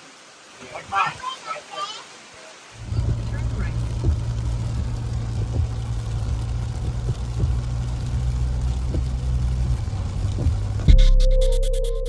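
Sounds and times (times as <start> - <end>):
even hiss: 0.0 - 12.0
low engine rumble: 2.8 - 11.2.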